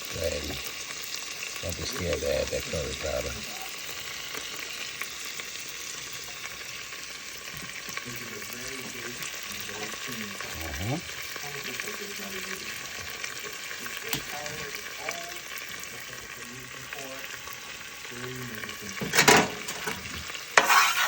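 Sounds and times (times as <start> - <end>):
curry frying in butter sizzling: 0.0 - 21.0
spoon stirring against pan: 19.0 - 21.0.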